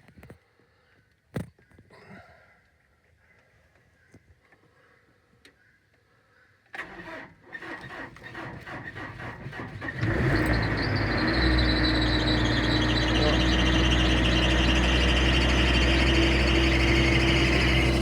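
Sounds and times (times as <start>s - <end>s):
starter cranking engine: 6.8s - 18.0s
truck engine running: 8.4s - 18.0s.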